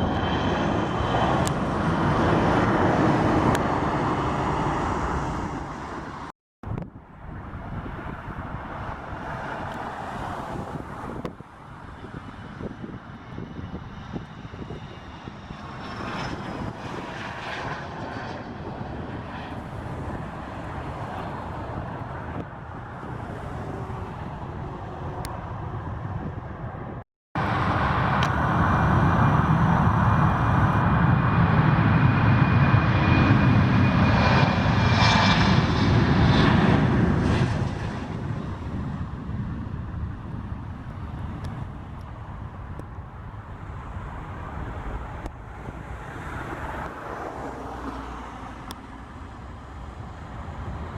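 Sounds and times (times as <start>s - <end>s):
jet engines rushing: 0.0s - 6.3s, 7.2s - 50.9s
plane passing with whine: 0.0s - 50.9s.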